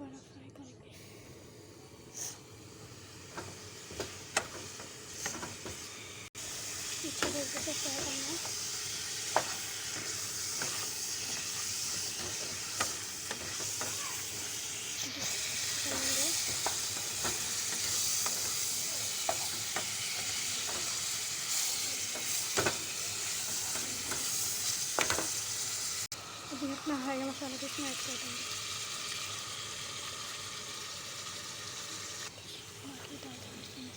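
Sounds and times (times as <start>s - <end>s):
chicken sizzling in a pan: 1.0s - 33.9s
utensil clicking against pan: 23.5s - 25.4s.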